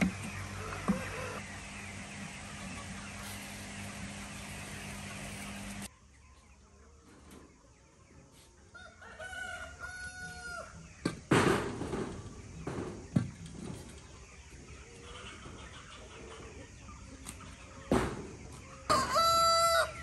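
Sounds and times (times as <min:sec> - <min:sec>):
drawn-out animal call: 0:00.0 - 0:01.6
steady low hum: 0:00.0 - 0:05.9.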